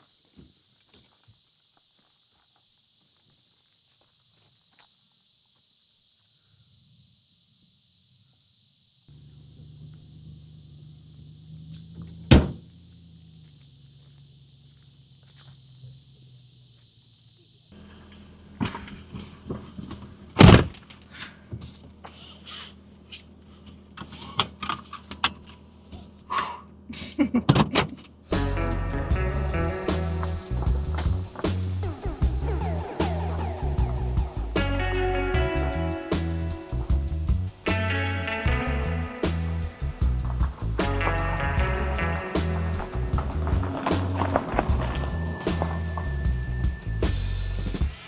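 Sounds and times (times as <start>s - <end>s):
high insect drone: 0.0s - 20.0s, 28.3s - 48.0s
low steady hum: 28.3s - 48.0s.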